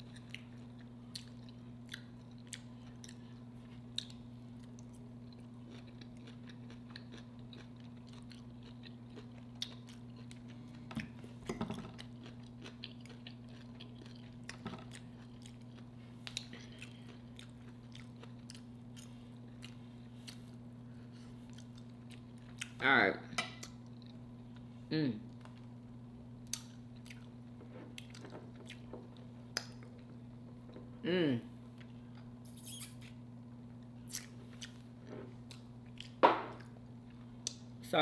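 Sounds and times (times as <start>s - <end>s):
close chewing: 0.0s - 11.3s, 11.9s - 20.6s
steady low hum: 0.0s - 38.0s.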